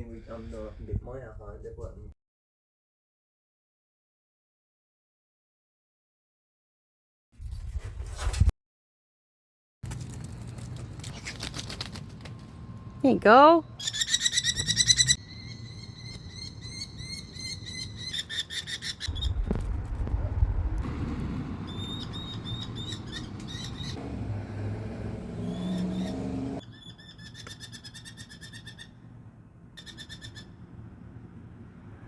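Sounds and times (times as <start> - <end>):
single bird chirps: 13.8 - 19.4, 21.7 - 24.0, 25.4 - 28.9
low rumbling noise: 19.1 - 26.6
bird chattering calls: 21.7 - 24.0.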